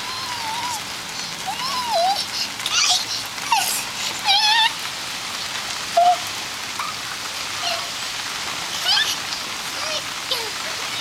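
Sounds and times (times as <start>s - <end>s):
child's high wavering vocal sounds: 0.0s - 4.9s, 5.9s - 6.4s, 7.6s - 8.0s, 8.7s - 11.0s
rain pattering on surfaces: 0.0s - 11.0s.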